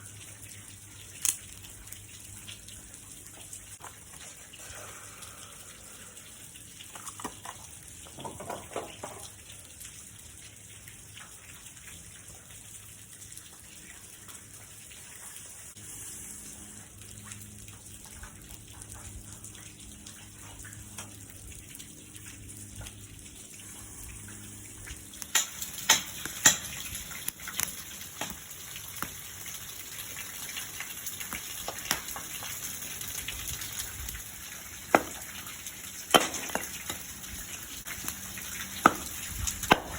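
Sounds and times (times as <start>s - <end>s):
sharp cracks and pops: 1.2s - 2.0s, 25.1s - 29.2s, 31.2s - 32.7s, 38.8s - 39.9s
rain hissing: 3.9s - 7.0s, 14.5s - 39.9s.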